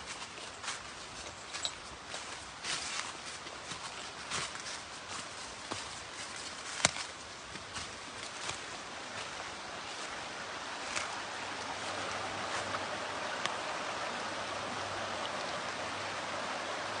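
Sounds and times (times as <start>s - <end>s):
running water rushing: 0.0s - 17.0s
light ticks: 13.4s - 13.6s.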